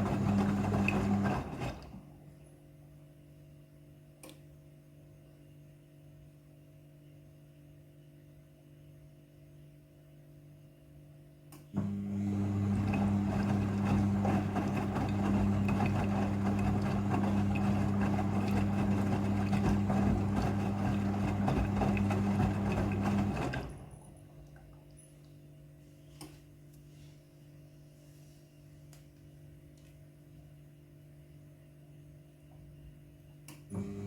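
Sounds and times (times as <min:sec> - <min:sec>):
washing machine humming: 0:00.0 - 0:02.4, 0:11.7 - 0:25.7, 0:32.9 - 0:34.0.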